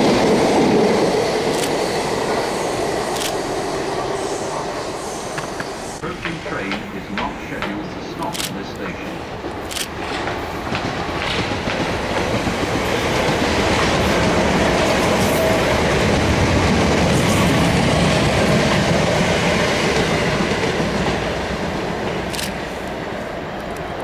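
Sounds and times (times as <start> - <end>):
train wheels clattering over rail joints: 9.3 - 22.9.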